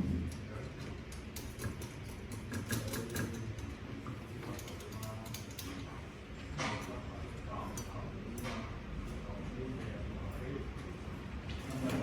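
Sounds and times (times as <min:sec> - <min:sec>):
small mechanical clicks and rattles: 0:00.8 - 0:03.8, 0:04.4 - 0:05.9.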